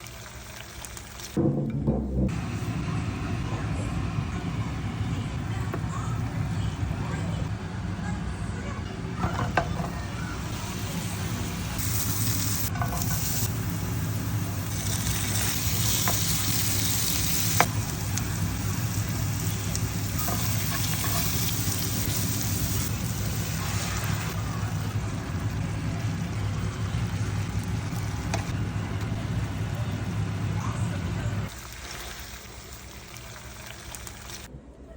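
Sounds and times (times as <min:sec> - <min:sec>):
food sizzling in a pan: 0:00.0 - 0:01.4, 0:09.3 - 0:28.6, 0:30.4 - 0:34.5.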